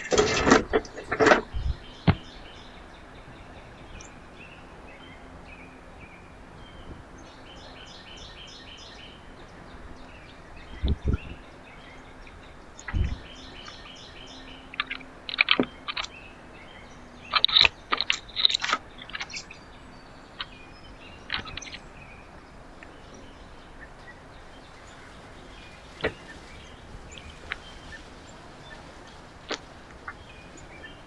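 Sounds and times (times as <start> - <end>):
faint steady hum: 0.0 - 31.0
small birds chirping: 0.0 - 31.0
low thump: 12.9 - 13.3.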